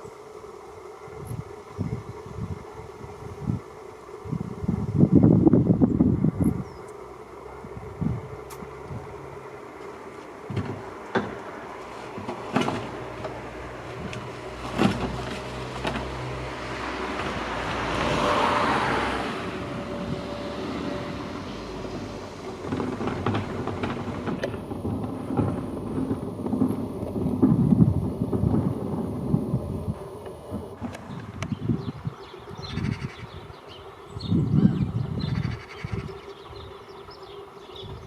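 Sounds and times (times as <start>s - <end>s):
outdoor background noise: 0.0s - 38.0s
vehicle passing: 7.0s - 33.1s
scattered knocks: 10.5s - 13.5s, 22.4s - 31.0s.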